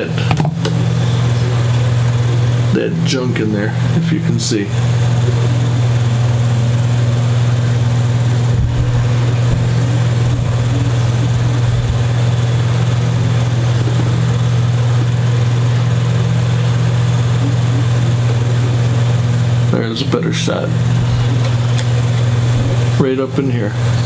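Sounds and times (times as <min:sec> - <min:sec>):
steady low hum: 0:00.0 - 0:24.0
soft low bumps: 0:07.1 - 0:15.2.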